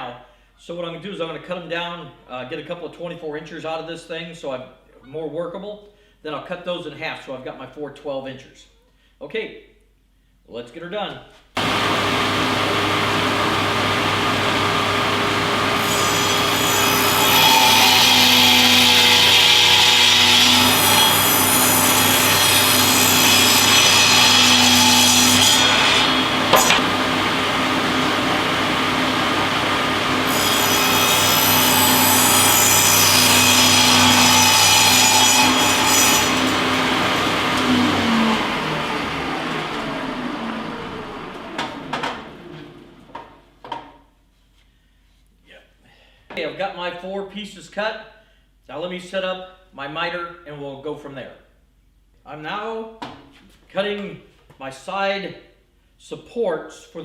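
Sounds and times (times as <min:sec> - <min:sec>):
saw spinning down: 0:11.6 - 0:43.0
power saw cutting board: 0:11.6 - 0:43.4.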